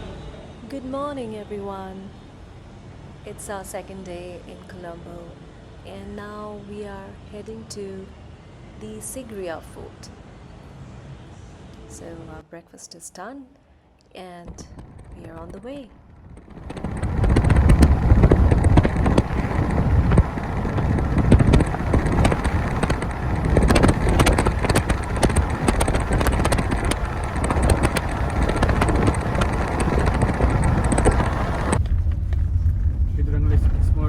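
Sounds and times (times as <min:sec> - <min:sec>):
rattles and knocks: 0:14.5 - 0:34.0
vehicle engine and road rumble: 0:14.5 - 0:34.0.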